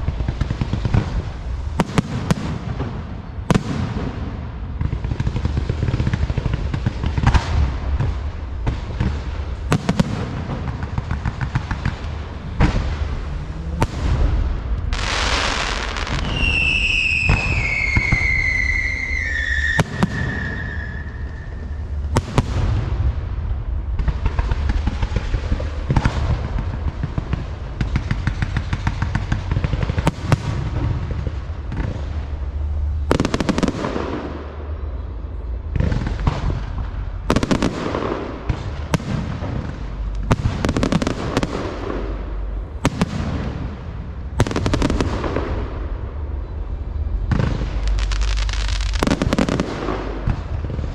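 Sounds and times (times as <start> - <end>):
fireworks bangs: 0.0 - 50.9
fireworks crackling: 0.0 - 50.9
firework whistle falling in pitch: 15.2 - 21.9.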